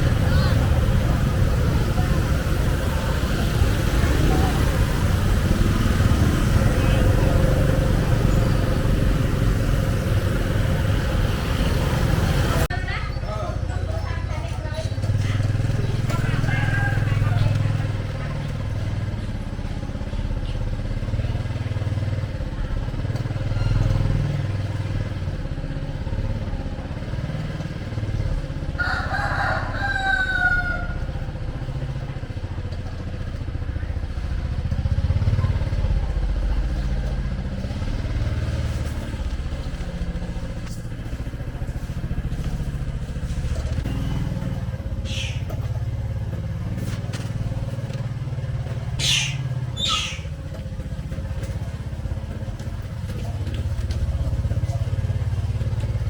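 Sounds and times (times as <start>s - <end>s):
low rumble of motorcycle traffic: 0.0s - 56.0s
rooster crowing: 16.4s - 17.4s, 28.6s - 31.3s.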